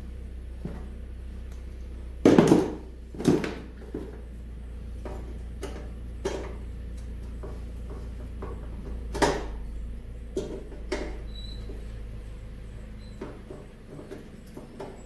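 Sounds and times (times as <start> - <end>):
steady low hum: 0.0 - 15.0
clunks of tools and metal parts: 5.0 - 12.0, 12.7 - 15.0.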